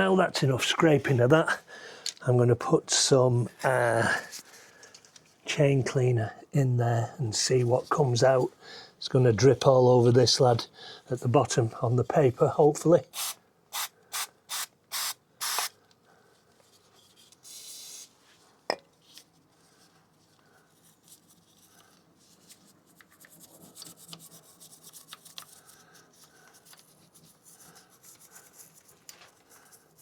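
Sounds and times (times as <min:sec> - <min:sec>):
aerosol spray hissing: 0:13.2 - 0:15.7.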